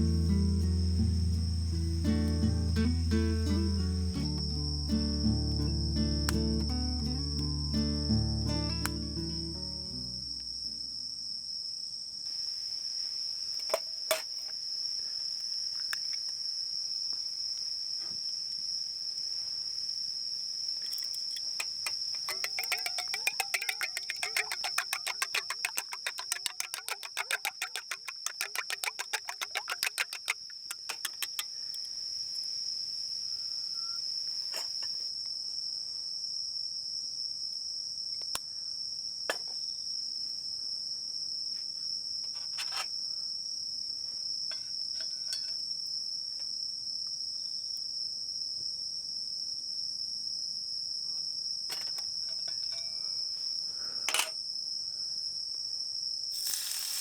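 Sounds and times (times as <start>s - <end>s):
fast pulsing insect call: 0.0s - 11.2s, 19.6s - 35.1s, 56.4s - 57.0s
high-pitched insect drone: 0.0s - 11.2s.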